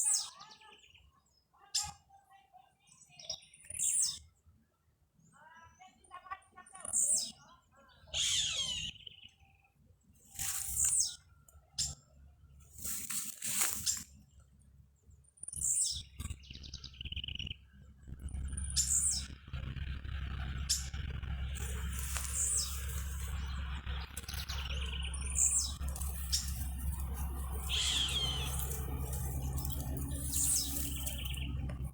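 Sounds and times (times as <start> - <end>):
birds chirping: 0.0 - 4.6, 5.2 - 31.9
low rumble: 16.8 - 31.9.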